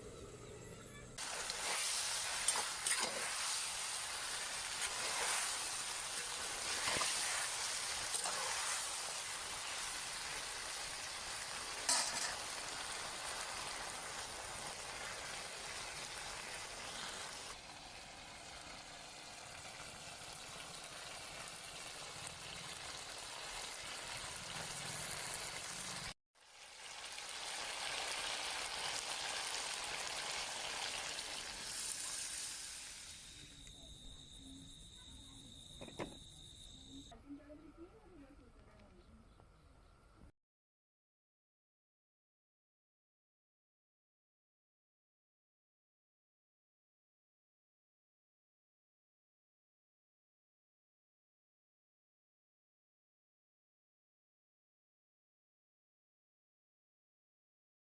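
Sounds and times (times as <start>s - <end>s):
food sizzling in a hot pan: 1.2s - 34.9s.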